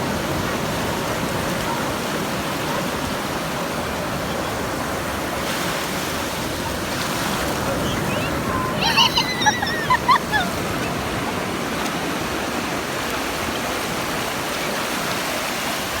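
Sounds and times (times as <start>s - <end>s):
ocean surf on beach: 0.0s - 16.0s
high-pitched bird calls: 7.8s - 10.1s.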